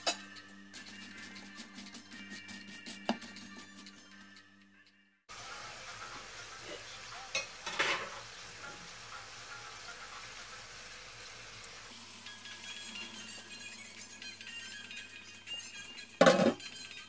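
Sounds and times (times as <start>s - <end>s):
potato wedges sizzling in oil: 5.3s - 16.2s.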